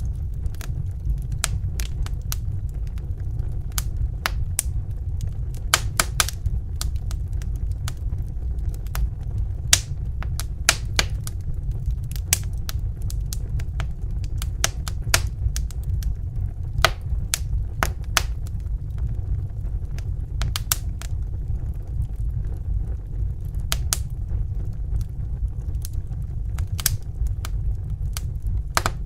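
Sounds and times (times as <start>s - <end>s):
low rumble of flames: 0.0s - 29.0s
wood fire crackling: 0.0s - 29.0s.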